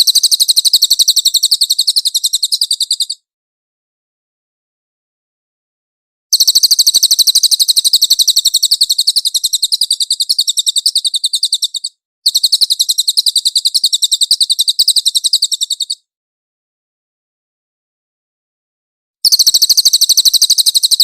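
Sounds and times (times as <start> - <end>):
songbird rapid trill: 0.0 - 3.2, 6.3 - 16.1, 19.2 - 21.0.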